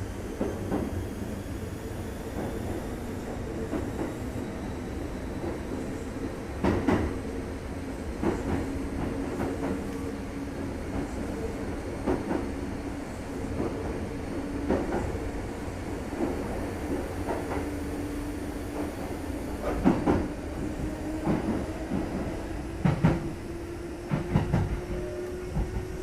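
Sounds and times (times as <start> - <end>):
train rumble inside car: 8.1 - 10.2, 10.8 - 12.5, 18.8 - 23.4, 24.0 - 26.0.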